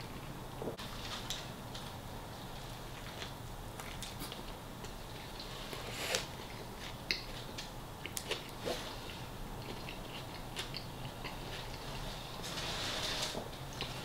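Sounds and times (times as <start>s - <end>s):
person chewing soft food: 2.5s - 12.4s, 13.5s - 14.0s.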